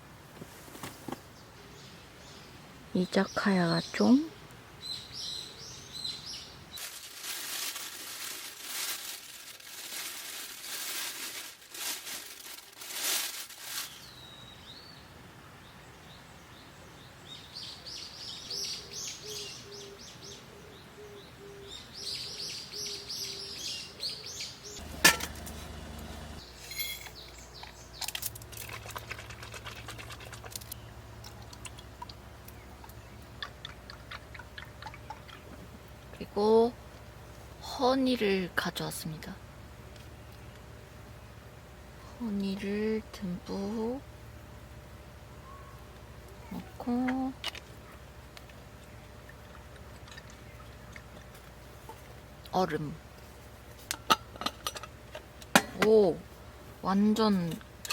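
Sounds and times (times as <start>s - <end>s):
small birds chirping: 0.8s - 6.8s, 13.8s - 28.2s
rustling handling noises: 6.8s - 14.1s.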